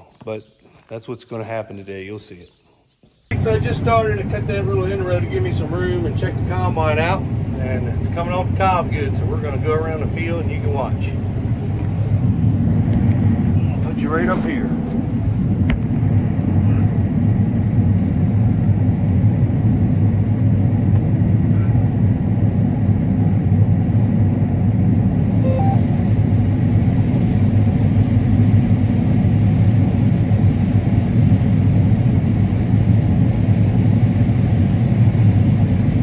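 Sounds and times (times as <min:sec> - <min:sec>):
combine harvester droning: 0:03.3 - 0:18.4, 0:25.0 - 0:26.9.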